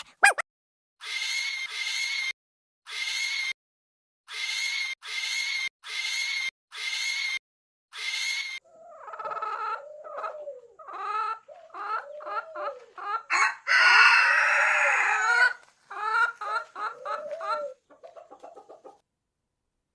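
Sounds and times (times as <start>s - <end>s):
chickens clucking: 8.6s - 13.4s, 15.2s - 19.0s
rooster crowing: 12.6s - 15.6s.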